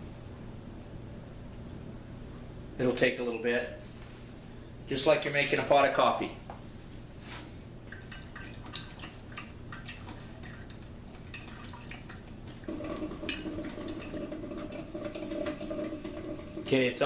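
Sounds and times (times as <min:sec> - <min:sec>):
coffee maker hum: 0:12.4 - 0:17.0.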